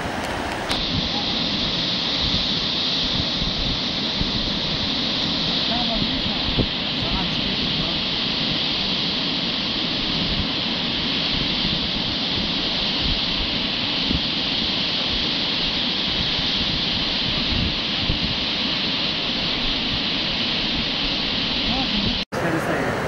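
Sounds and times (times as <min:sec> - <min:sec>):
whitewater rushing: 0:00.0 - 0:00.8.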